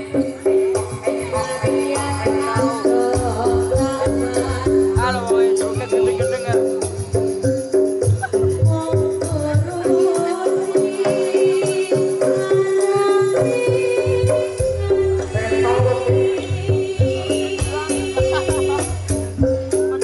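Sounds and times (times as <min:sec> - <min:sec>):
rattling jingling percussion: 0:00.0 - 0:20.0
steady drumming: 0:00.0 - 0:20.0
loud reed melody: 0:15.3 - 0:20.0.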